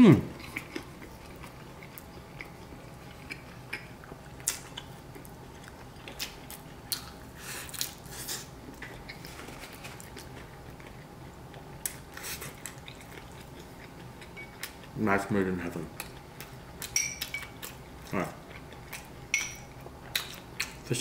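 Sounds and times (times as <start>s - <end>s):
chewing with wet mouth smacks: 0.3s - 15.0s, 15.7s - 20.9s.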